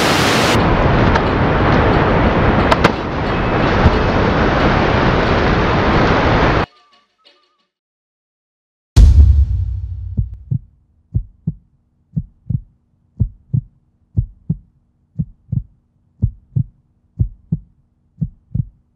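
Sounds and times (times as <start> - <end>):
deep boom: 9.0 - 10.7
heartbeat thumps: 9.0 - 18.9.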